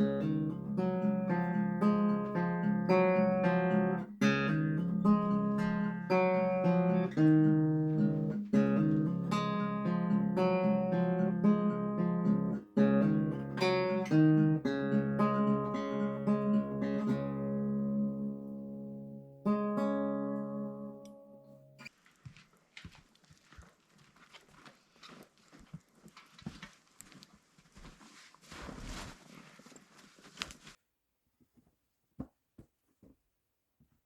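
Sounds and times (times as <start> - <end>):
acoustic guitar playing: 0.0 - 21.9.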